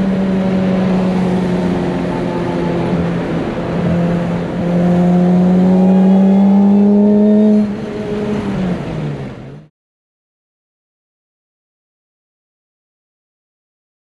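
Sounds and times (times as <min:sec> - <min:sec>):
car engine accelerating: 0:00.0 - 0:09.7.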